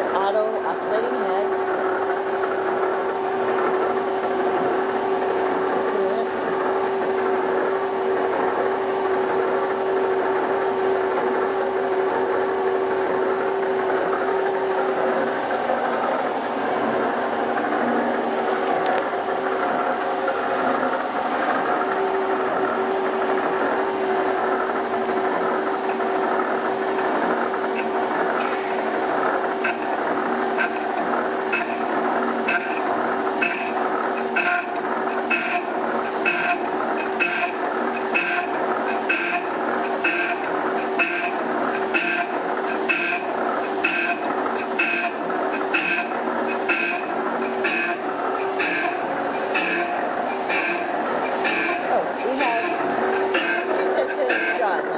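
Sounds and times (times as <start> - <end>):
drill grinder motor humming: 26.9 - 54.9.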